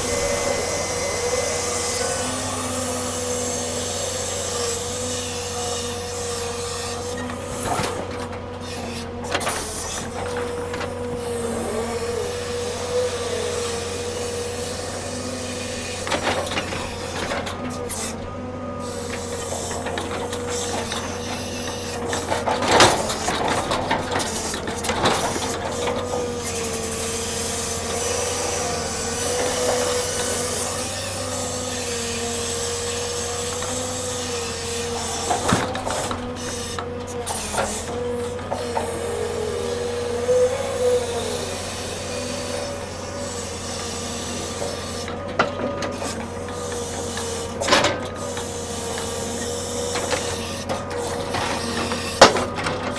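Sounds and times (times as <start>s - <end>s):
machinery whine: 0.0s - 49.1s.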